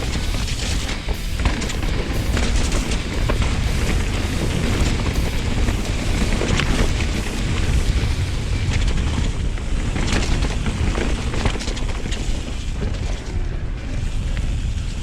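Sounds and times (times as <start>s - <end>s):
bike clattering over bumps: 0.0s - 13.4s
wind buffeting microphone: 0.0s - 15.0s.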